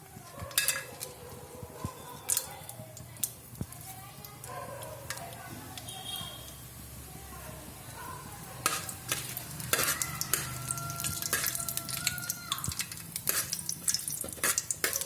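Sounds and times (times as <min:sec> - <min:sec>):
food sizzling in hot oil: 0:00.0 - 0:01.2, 0:02.2 - 0:15.0
metal spoon scraping a pan: 0:00.5 - 0:01.2, 0:08.6 - 0:15.0.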